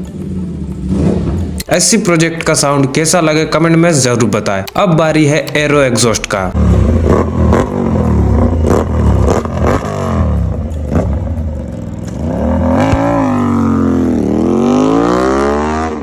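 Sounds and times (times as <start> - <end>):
motorcycle engine revving: 0.0 - 1.7, 6.5 - 16.0
exhaust cracks: 6.3 - 15.0.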